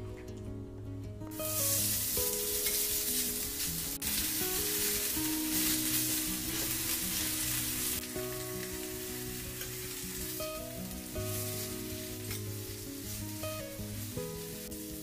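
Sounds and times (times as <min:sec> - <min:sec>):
soft background music: 0:00.0 - 0:15.0
fish sizzling in tray: 0:01.3 - 0:15.0
metal tongs turning food: 0:01.4 - 0:13.2.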